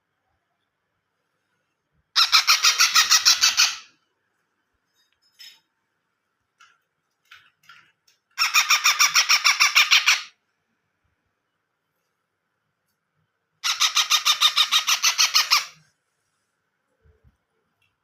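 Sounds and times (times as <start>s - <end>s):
parrot chick squawking: 2.2s - 3.9s, 8.4s - 10.4s, 13.6s - 15.8s.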